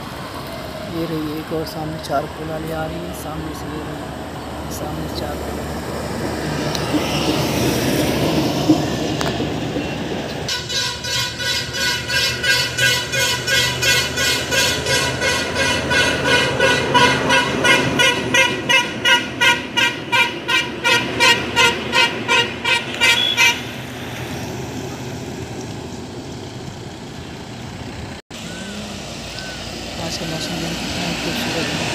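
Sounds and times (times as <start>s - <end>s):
road and engine noise: 0.0s - 31.9s
vehicle horn honking in pulses: 10.5s - 23.8s.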